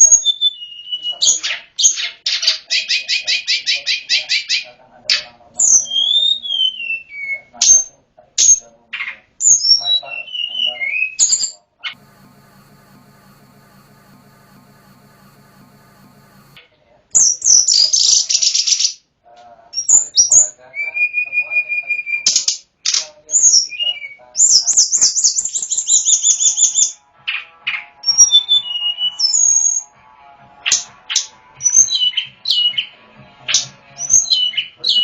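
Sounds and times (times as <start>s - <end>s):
bird singing trills and whistles: 0.0s - 4.6s, 5.6s - 7.8s, 9.4s - 11.6s, 19.8s - 22.5s, 23.3s - 27.0s, 27.7s - 29.8s, 31.6s - 32.9s, 34.0s - 35.0s.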